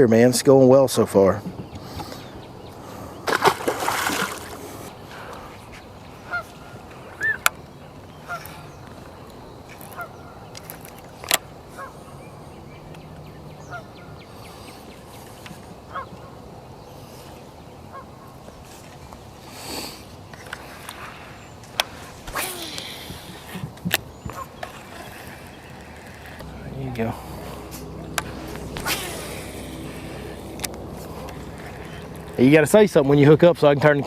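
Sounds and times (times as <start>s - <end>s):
short bird calls: 5.1s - 10.8s, 11.7s - 18.8s.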